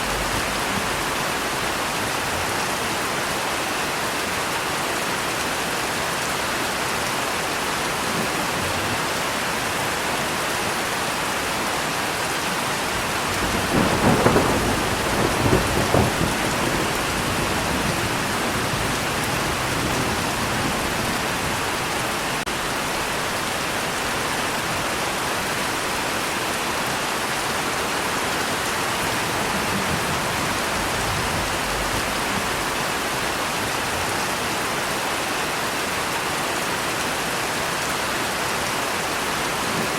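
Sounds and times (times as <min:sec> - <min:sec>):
heavy rain falling: 0:00.0 - 0:39.9
thunder rumble: 0:12.9 - 0:23.4, 0:28.6 - 0:33.3.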